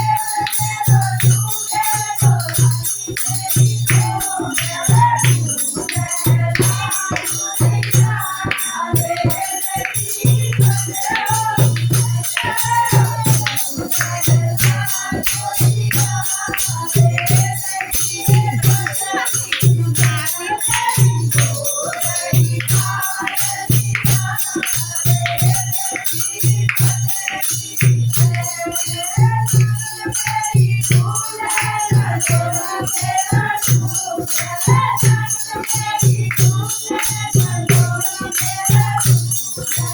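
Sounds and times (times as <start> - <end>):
hand percussion beat: 0.0 - 39.9
jingling rattles and shakers: 0.0 - 39.9
person singing devotional song: 0.0 - 39.9.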